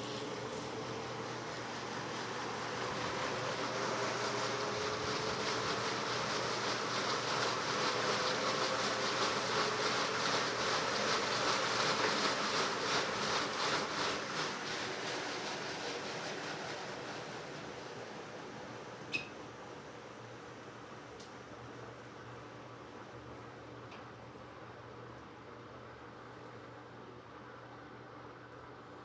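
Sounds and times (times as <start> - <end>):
washing machine water churning: 0.0 - 21.0.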